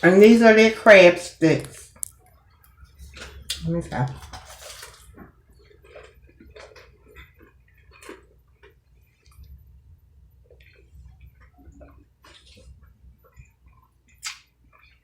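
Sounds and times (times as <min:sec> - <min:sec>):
crunchy bite of fried food: 0:03.0 - 0:09.4, 0:14.1 - 0:15.0
chewing clicks and smacks: 0:05.1 - 0:09.6, 0:10.4 - 0:15.0.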